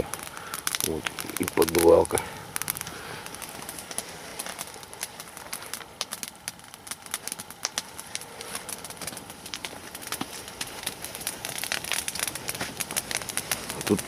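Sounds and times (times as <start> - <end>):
coals popping and snapping: 0.0 - 14.0
log fire crackling: 0.0 - 14.0.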